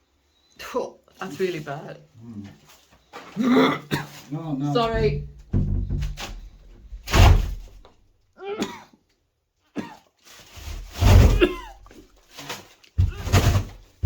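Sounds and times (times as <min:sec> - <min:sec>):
person gagging and coughing: 0:03.4 - 0:04.1, 0:08.4 - 0:09.0, 0:09.8 - 0:10.0, 0:11.3 - 0:12.0.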